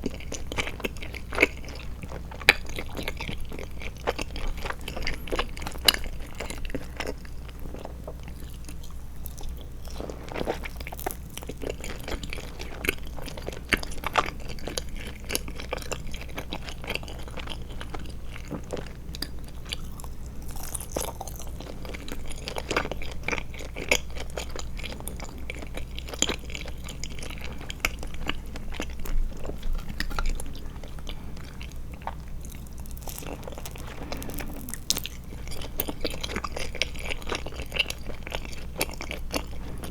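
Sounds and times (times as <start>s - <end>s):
chewing with mouth clicks: 0.0s - 39.9s
low constant hum: 0.0s - 39.9s.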